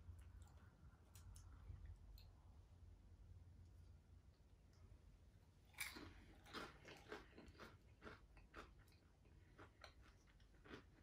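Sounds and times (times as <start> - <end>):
crunching bites of fried snack: 5.7 - 11.0.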